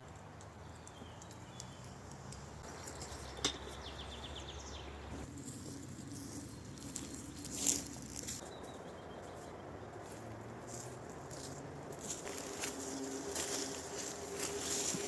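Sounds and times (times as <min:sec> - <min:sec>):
bird chirping: 0:00.6 - 0:05.3, 0:08.4 - 0:10.0
dry leaves rustling: 0:02.6 - 0:15.0.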